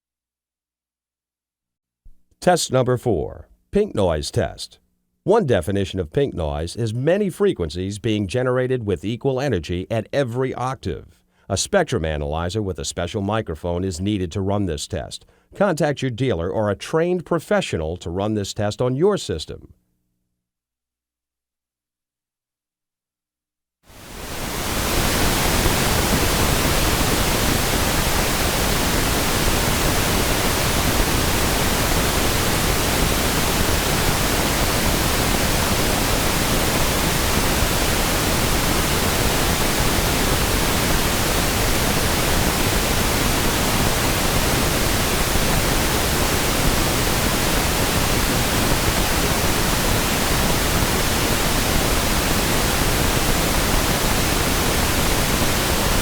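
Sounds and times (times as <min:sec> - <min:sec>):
pink noise hiss: 0:23.9 - 0:56.0.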